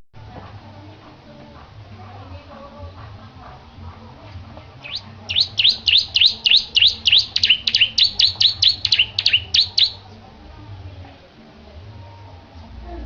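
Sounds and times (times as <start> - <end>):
bird singing descending notes: 4.8 - 10.0.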